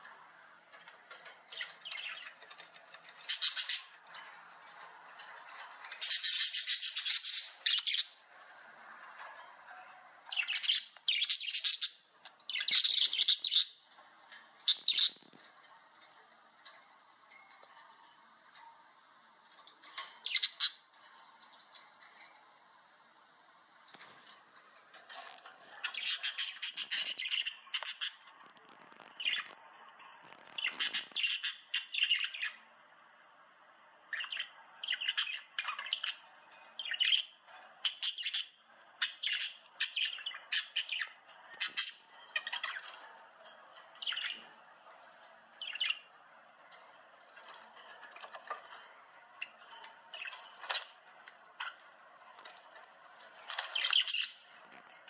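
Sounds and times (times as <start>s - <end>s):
bird chirping and squawking: 0.1s - 9.4s, 10.2s - 13.8s, 14.6s - 15.3s, 20.2s - 20.9s, 25.1s - 29.6s, 30.3s - 32.7s, 34.1s - 43.2s, 43.8s - 44.6s, 45.2s - 46.2s, 47.4s - 52.6s, 53.4s - 54.6s.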